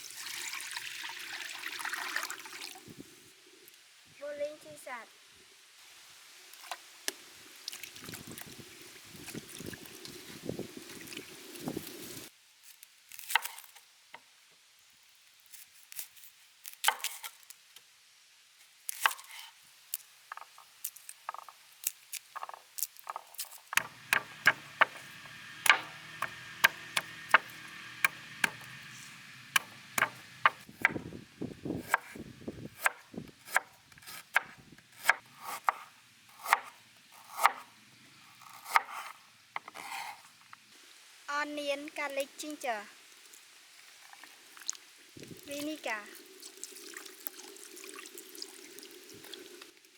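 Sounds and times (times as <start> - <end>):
knife chopping on cutting board: 23.8 - 31.1, 31.8 - 32.2, 32.8 - 36.7, 37.3 - 37.7.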